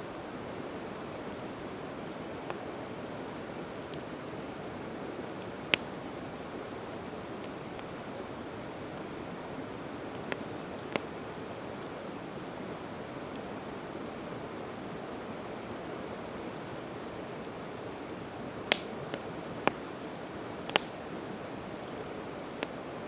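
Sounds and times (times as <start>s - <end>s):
high even chirp: 5.2s - 12.4s
campfire crackling pops: 5.2s - 12.5s, 18.7s - 19.8s, 20.7s - 21.0s.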